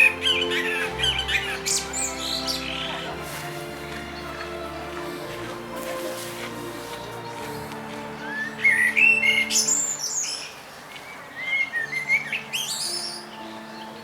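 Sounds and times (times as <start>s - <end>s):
blackbird singing: 0.0s - 3.2s, 8.2s - 14.0s.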